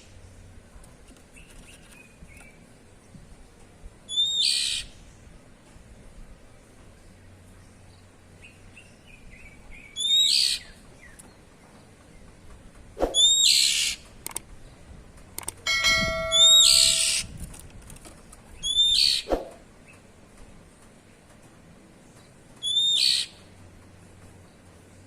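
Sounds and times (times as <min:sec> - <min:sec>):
brief ringing tone: 0:15.7 - 0:17.3
bird harsh rasping calls: 0:16.2 - 0:17.3.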